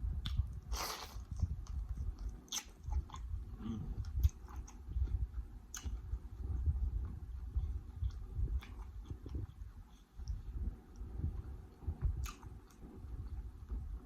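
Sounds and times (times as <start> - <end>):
close chewing with wet smacks: 0.1 - 14.0.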